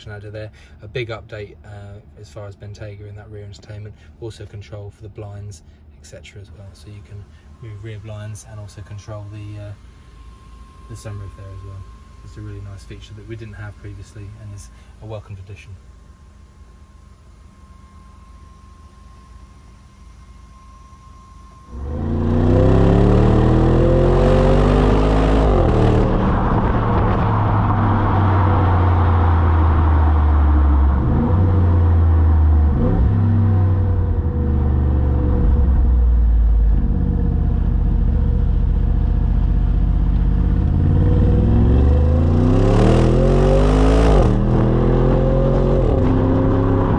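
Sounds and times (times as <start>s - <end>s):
car engine accelerating hard: 21.7s - 46.9s.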